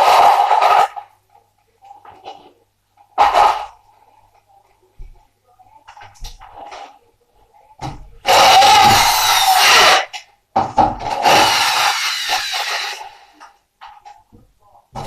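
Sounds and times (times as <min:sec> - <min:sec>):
power tool cutting: 0:08.3 - 0:10.1, 0:11.1 - 0:13.2.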